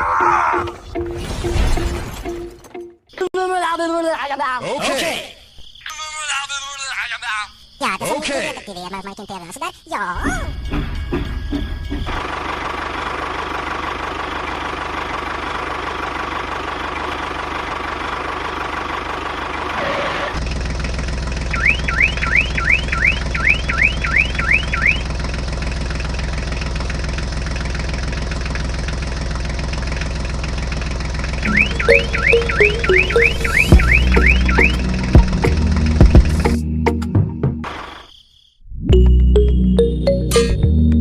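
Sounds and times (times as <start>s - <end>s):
engine-like hum: 10.2s - 36.9s
rising electronic chirps: 21.5s - 25.0s, 31.4s - 35.3s.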